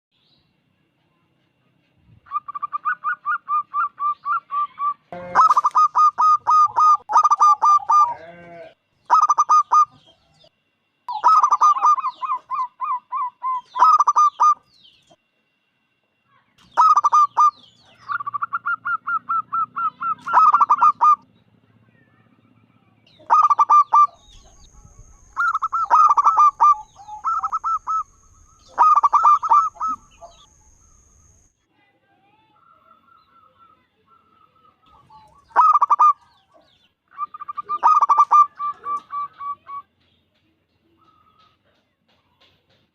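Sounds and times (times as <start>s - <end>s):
dove cooing: 2.3s - 8.3s, 9.1s - 10.0s, 11.1s - 14.6s, 16.8s - 21.2s, 23.2s - 30.5s, 34.9s - 36.3s, 37.2s - 39.9s.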